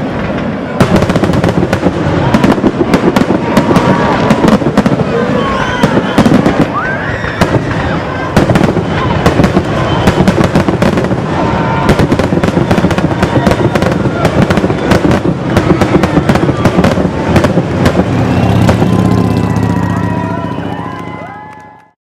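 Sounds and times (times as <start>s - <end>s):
fireworks bangs and crackles: 0.0s - 21.8s
falling firework whistles: 0.9s - 21.6s.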